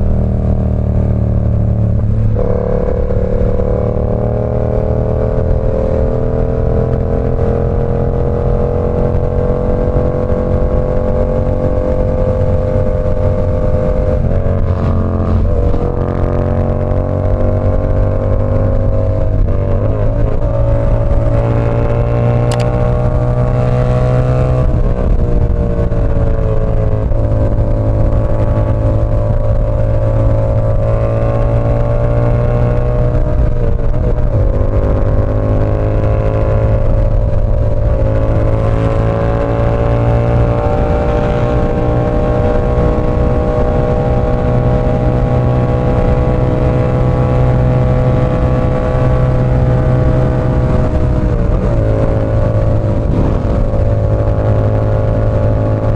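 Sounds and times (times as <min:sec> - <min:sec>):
motorcycle engine running: 0:00.0 - 0:55.9
sharp click: 0:22.5 - 0:22.8.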